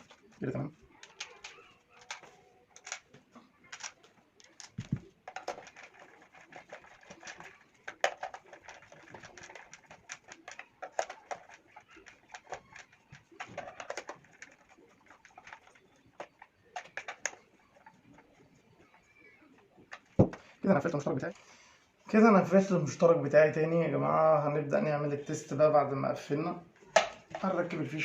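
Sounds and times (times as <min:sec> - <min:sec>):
plastic casing clicks and knocks: 0:03.7 - 0:17.4, 0:26.9 - 0:27.5.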